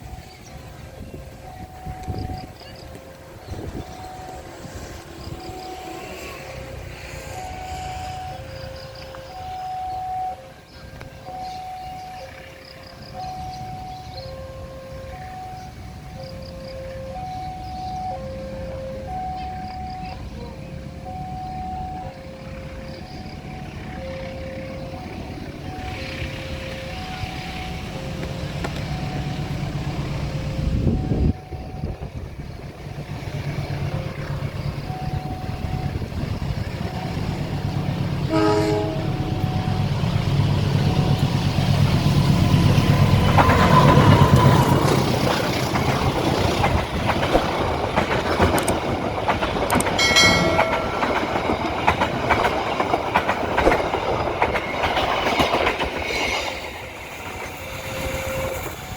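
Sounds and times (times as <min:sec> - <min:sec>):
train rumble: 0:00.0 - 0:58.9
train horn toot: 0:05.2 - 0:06.9, 0:38.2 - 0:40.0, 0:57.6 - 0:58.9.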